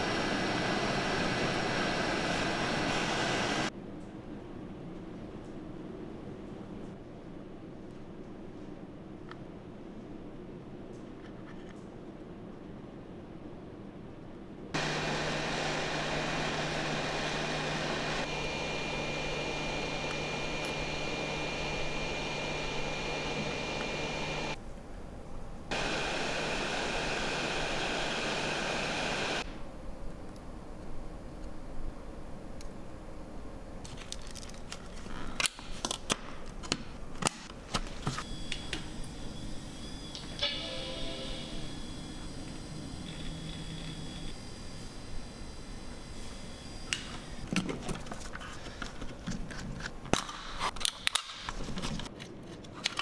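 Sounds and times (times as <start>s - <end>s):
whirring blowing noise: 0.0s - 3.7s, 14.8s - 29.6s, 37.6s - 40.4s, 41.1s - 47.6s
high whine: 14.8s - 24.6s, 25.7s - 29.5s, 38.1s - 47.5s
low hum: 14.8s - 29.4s.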